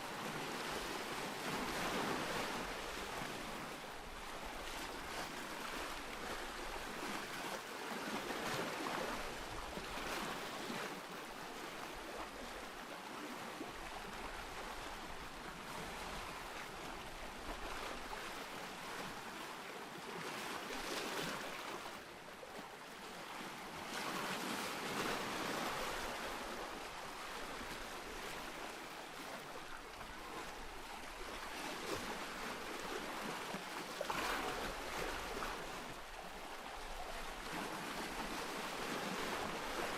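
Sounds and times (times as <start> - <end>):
ocean waves breaking: 23.4 - 39.9.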